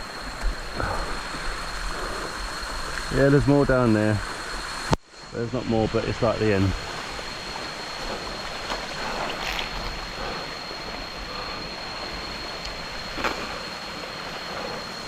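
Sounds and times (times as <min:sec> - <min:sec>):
waterfall and stream rushing: 0:00.0 - 0:15.0.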